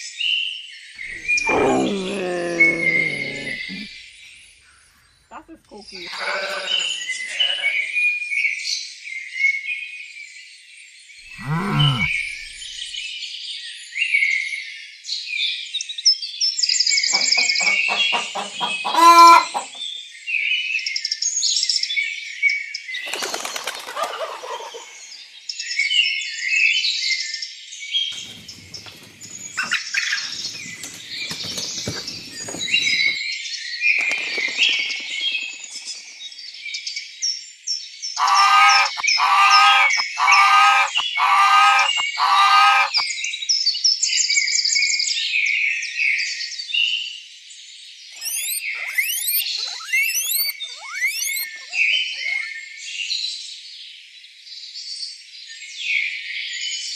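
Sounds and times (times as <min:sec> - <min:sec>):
lower bird call: 0:01.0 - 0:03.9, 0:11.3 - 0:12.7, 0:38.2 - 0:43.0, 0:48.2 - 0:52.6
small birds chirping: 0:01.0 - 0:04.1, 0:11.3 - 0:13.0, 0:17.1 - 0:19.9, 0:28.2 - 0:33.2, 0:34.0 - 0:37.1, 0:38.2 - 0:43.0, 0:48.2 - 0:53.0.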